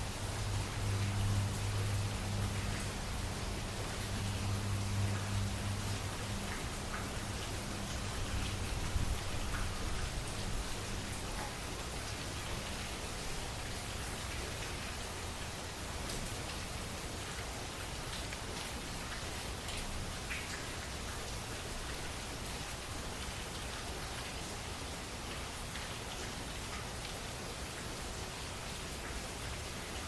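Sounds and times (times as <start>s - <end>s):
low steady hum: 0.0s - 15.2s
rain falling: 0.0s - 30.0s.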